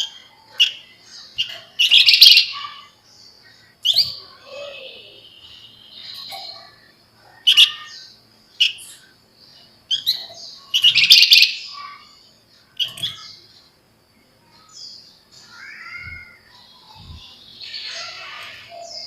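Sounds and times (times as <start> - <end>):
bird chattering calls: 0.0 - 3.0, 3.8 - 9.1, 9.9 - 12.1.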